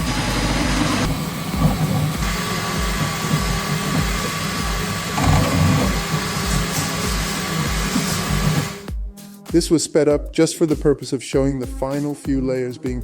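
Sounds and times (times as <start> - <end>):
cooling fan hiss: 0.0 - 8.9
stepper motors whirring: 0.0 - 8.9.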